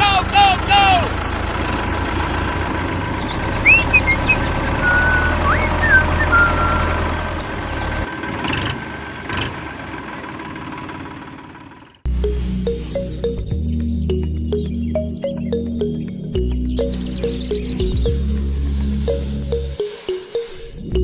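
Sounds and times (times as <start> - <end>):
low motor hum: 1.1 - 8.1, 12.1 - 19.8
whistling chirps: 3.2 - 7.2.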